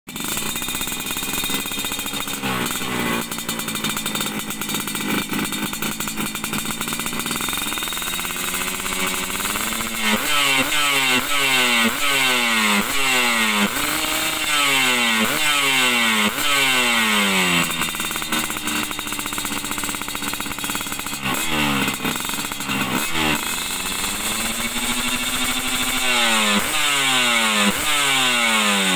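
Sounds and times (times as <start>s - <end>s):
motorcycle throttle blips: 0.1s - 28.4s
motorcycle engine idling: 0.1s - 28.9s.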